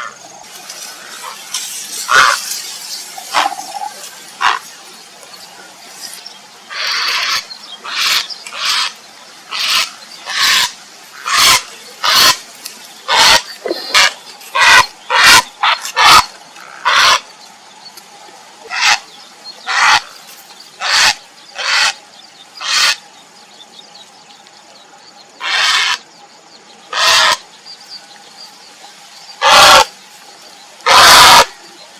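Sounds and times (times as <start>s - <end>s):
heron croaking calls: 3.3s - 4.6s, 6.7s - 12.4s, 13.1s - 17.2s, 18.7s - 19.0s, 19.7s - 20.1s, 20.8s - 22.0s, 22.6s - 23.0s, 25.4s - 26.0s, 26.9s - 27.4s, 29.4s - 29.9s, 30.8s - 31.5s.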